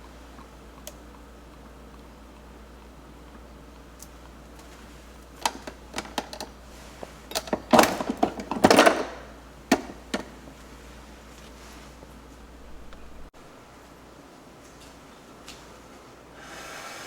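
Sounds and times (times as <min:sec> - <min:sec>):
sharp clicks and knocks: 0:05.4 - 0:06.6, 0:07.3 - 0:10.3.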